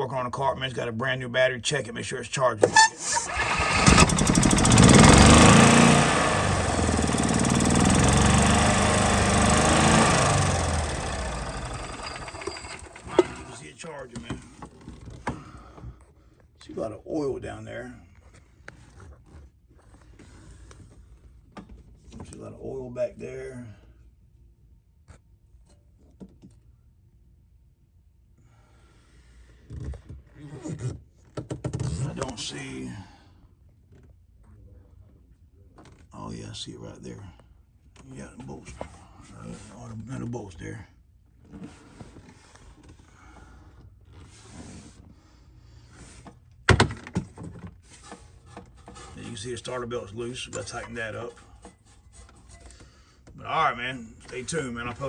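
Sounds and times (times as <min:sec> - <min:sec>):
golf cart engine running: 0:02.6 - 0:13.6.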